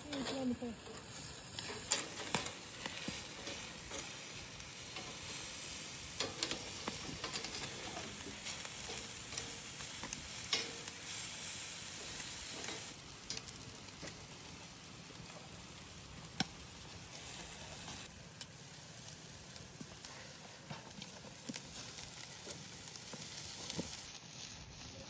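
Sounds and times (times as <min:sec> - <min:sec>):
stirring clicks and scrapes: 0:00.0 - 0:11.3
food sizzling in a pot: 0:00.0 - 0:25.0.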